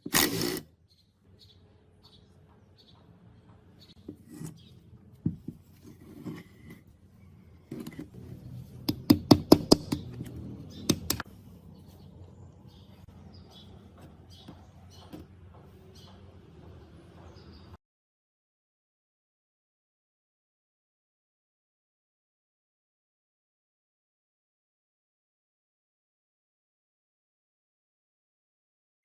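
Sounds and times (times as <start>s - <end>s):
workshop clicks and knocks: 8.8s - 11.3s.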